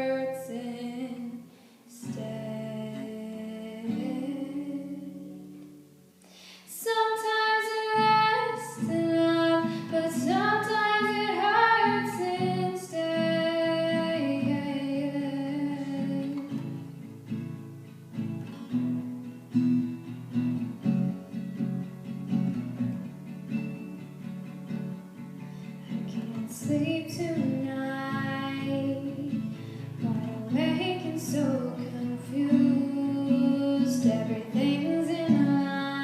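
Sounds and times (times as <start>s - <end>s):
woman singing: 0.0s - 5.7s, 6.6s - 16.8s, 26.1s - 36.0s
acoustic guitar: 0.0s - 36.0s.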